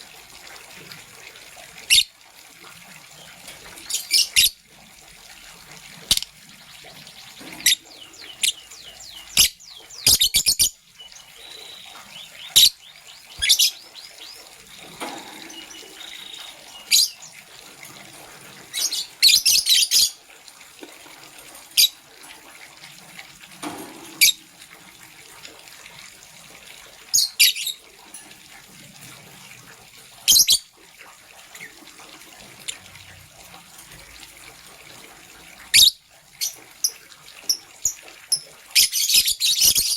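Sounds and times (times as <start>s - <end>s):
lovebirds chirping: 7.0s - 17.5s.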